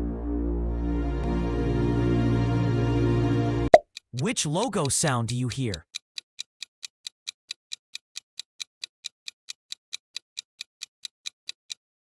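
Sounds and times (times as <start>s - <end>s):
fast clock-like ticking: 4.1s - 12.0s.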